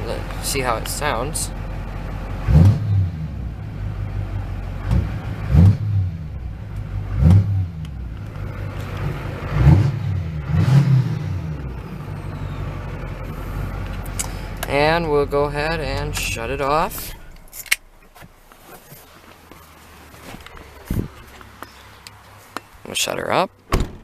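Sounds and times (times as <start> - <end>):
diesel engine idling and revving: 0.0 - 24.0.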